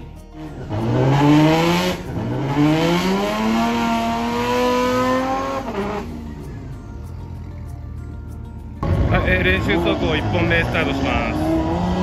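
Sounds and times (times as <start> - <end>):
car engine accelerating hard: 0.4 - 6.3, 8.8 - 12.0.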